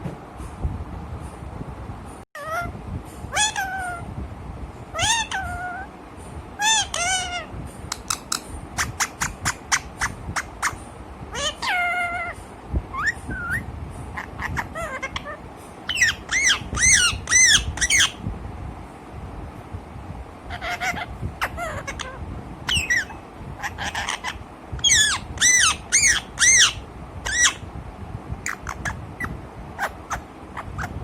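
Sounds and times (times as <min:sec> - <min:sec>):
parrot squawks: 0:03.3 - 0:04.0, 0:05.0 - 0:05.9, 0:06.6 - 0:13.6, 0:14.2 - 0:18.2, 0:20.5 - 0:27.6
parrot meow-like calls: 0:03.3 - 0:04.1, 0:05.0 - 0:05.9, 0:06.6 - 0:07.5, 0:11.3 - 0:13.6, 0:14.2 - 0:18.2, 0:20.5 - 0:27.6
parrot clicks: 0:07.9 - 0:08.4
parrot whistles: 0:13.0 - 0:13.7, 0:14.4 - 0:18.2, 0:22.7 - 0:27.6.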